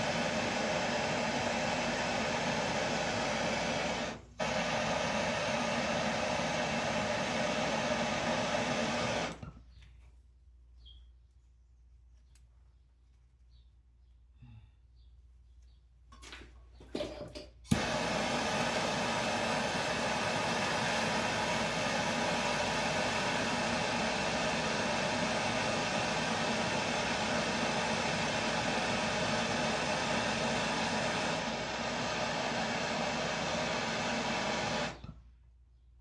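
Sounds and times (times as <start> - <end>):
gas torch burning: 0.0 - 9.5, 17.7 - 35.2
gas torch ignition click: 0.0 - 9.5, 17.7 - 35.2.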